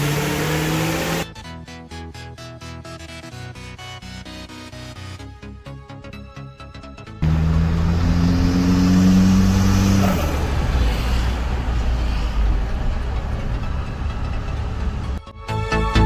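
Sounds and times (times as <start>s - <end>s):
car engine revving: 0.0s - 1.3s, 7.2s - 15.2s.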